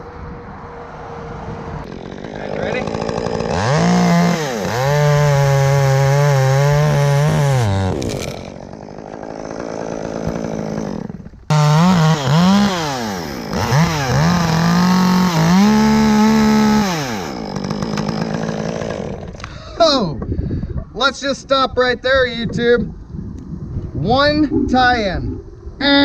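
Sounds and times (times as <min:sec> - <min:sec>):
chainsaw revving and idling: 0:01.8 - 0:19.6.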